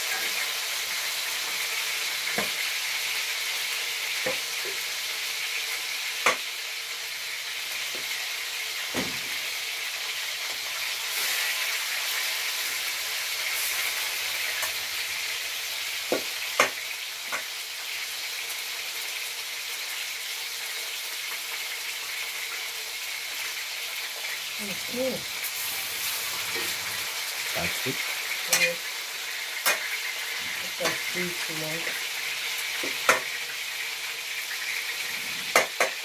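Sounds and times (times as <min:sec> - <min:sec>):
chicken sizzling in a pan: 0:00.0 - 0:36.0.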